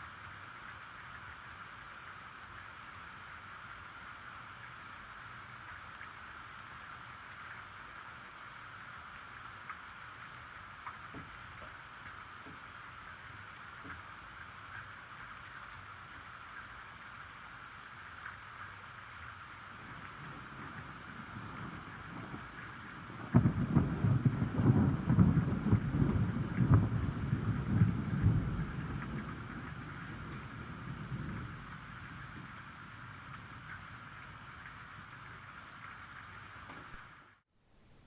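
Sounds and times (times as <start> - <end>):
faint ticks and taps: 9.6 - 13.0, 13.8 - 14.9, 30.3 - 30.5.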